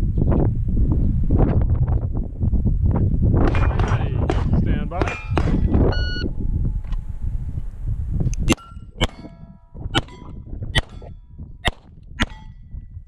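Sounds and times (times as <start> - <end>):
pistol shots: 3.5 - 5.8, 10.8 - 12.4
steel targets clanging: 3.5 - 6.8
shot timer beeps: 5.8 - 6.3.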